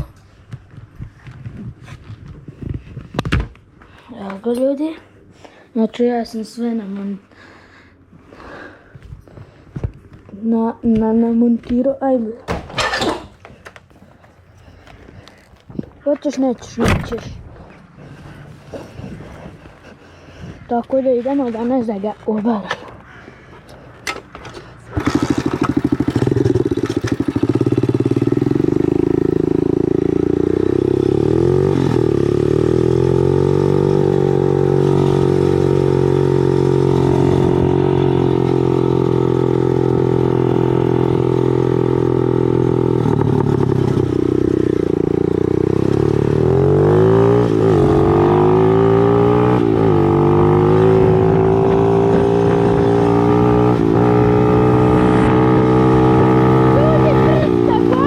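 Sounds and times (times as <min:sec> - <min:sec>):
motorcycle engine idling and revving: 0:09.2 - 0:58.0.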